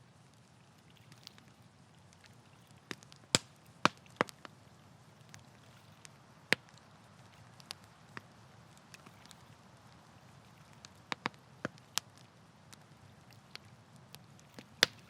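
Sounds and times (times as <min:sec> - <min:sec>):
wood campfire crackling: 0:00.0 - 0:15.0.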